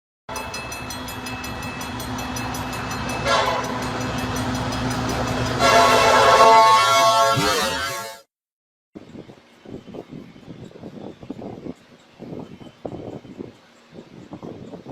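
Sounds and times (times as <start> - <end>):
train wheels clicking on rails: 0.3 - 6.3, 9.0 - 14.9
train hum: 0.3 - 8.1, 9.0 - 14.9
train horn: 3.2 - 3.9, 5.5 - 8.3.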